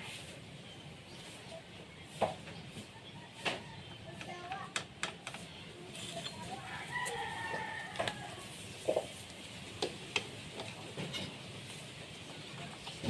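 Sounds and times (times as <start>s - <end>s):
sharp clicks and knocks: 4.4s - 5.4s
rooster crowing: 6.6s - 8.5s.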